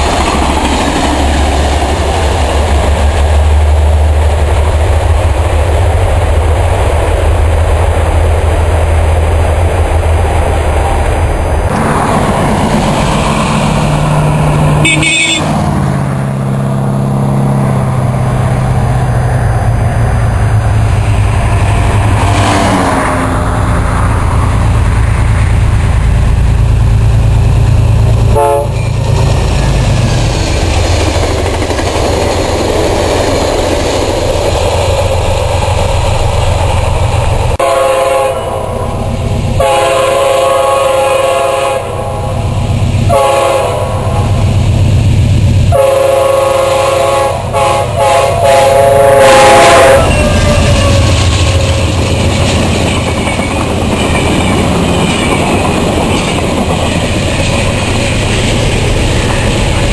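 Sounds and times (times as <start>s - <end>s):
diesel locomotive engine rumble: 0.0s - 59.9s
train cars running over rails: 0.0s - 59.9s
train air horn blasts: 14.8s - 15.6s, 28.3s - 29.0s, 37.6s - 38.9s, 39.6s - 42.4s, 43.1s - 44.3s, 45.7s - 52.0s.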